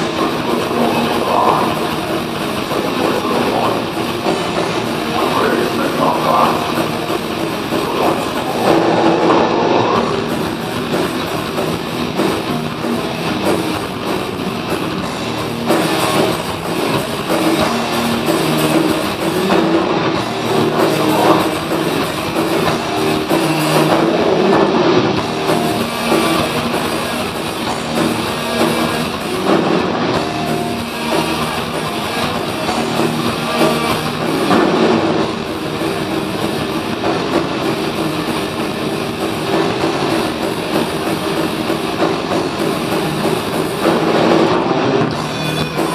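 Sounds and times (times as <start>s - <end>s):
heavy metal band playing live: 0.0s - 45.9s.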